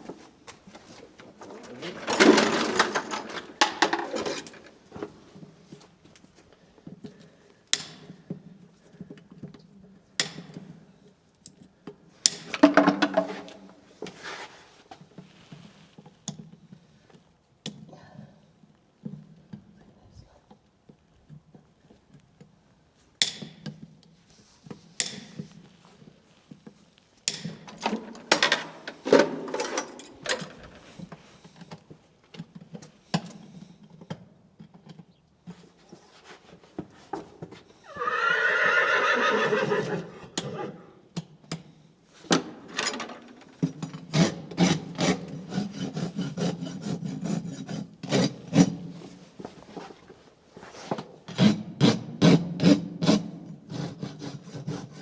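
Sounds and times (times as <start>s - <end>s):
horse whinnying: 37.8s - 41.0s
rasp scraping hoof: 43.6s - 50.0s.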